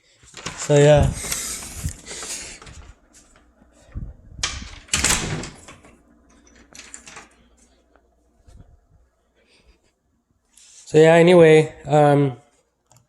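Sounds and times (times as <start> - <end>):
rustling and scraping handling noise: 0.0 - 4.1, 9.6 - 11.0.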